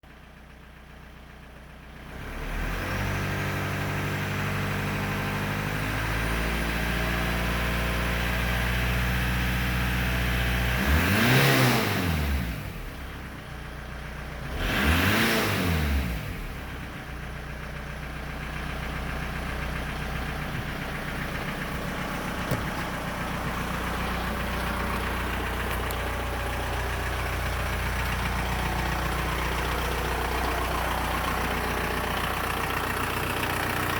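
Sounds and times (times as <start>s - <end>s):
diesel engine starting and idling: 0.1s - 33.9s
engine revving: 2.1s - 13.2s, 14.4s - 17.0s.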